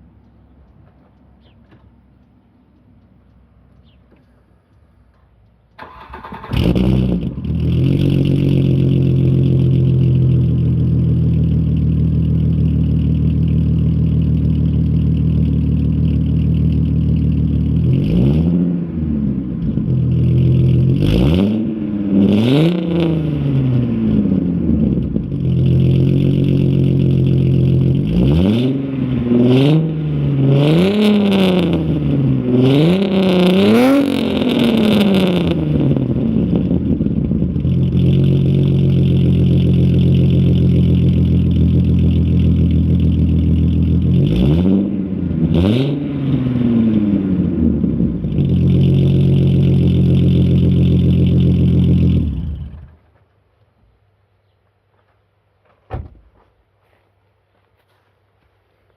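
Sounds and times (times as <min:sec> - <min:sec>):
car engine idling and revving: 0:00.0 - 0:53.3.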